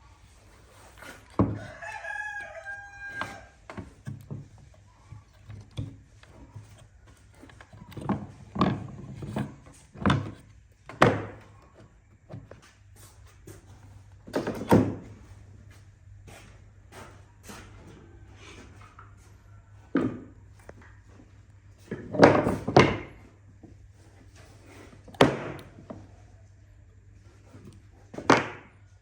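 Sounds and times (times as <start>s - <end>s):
rooster crowing: 1.4s - 3.7s.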